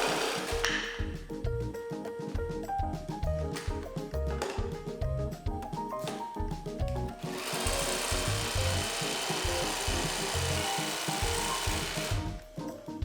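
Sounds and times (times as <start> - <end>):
cordless power tool on wood: 0.0 - 1.0, 7.2 - 12.4
background music: 0.0 - 13.0.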